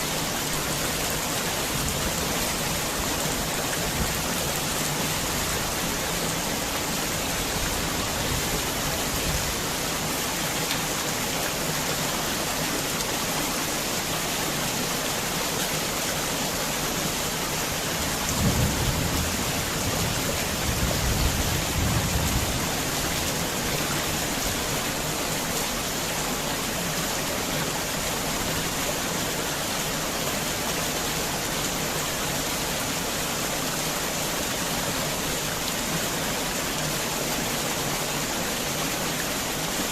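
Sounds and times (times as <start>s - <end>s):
heavy rain falling: 0.0s - 39.9s
low rumble of thunder: 18.2s - 23.1s.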